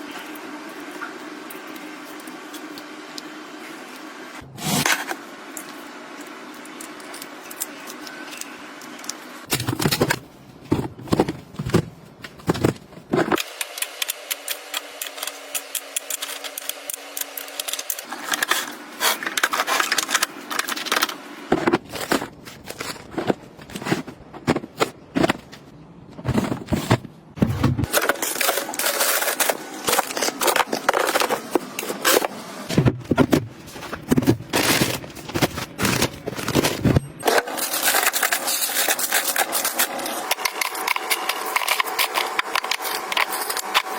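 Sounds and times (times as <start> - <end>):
packaging rustling and scraping: 9.4 - 13.5, 14.6 - 43.9.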